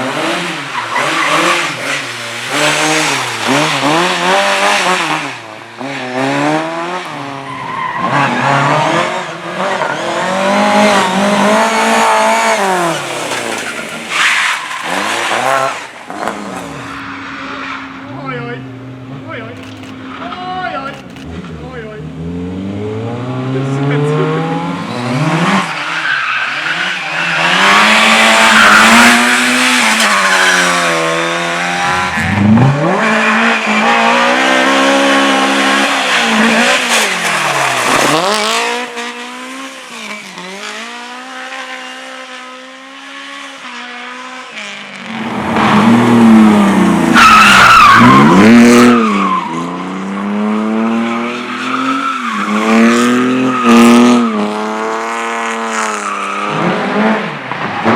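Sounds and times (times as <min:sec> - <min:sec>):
race car engine revving: 0:00.0 - 0:57.9
tyres squealing: 0:51.2 - 0:54.4.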